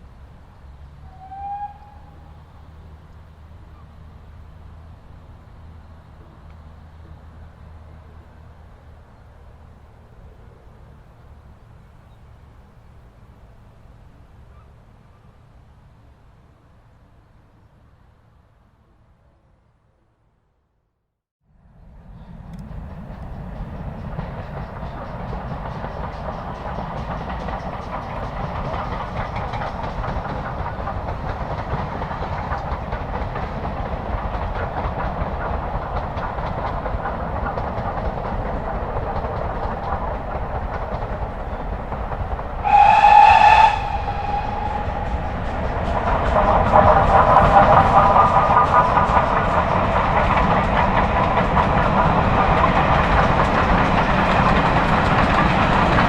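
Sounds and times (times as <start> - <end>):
steam train running on rails: 0.0 - 19.5, 21.6 - 56.0
train whistle blast: 1.0 - 2.3, 42.6 - 47.4.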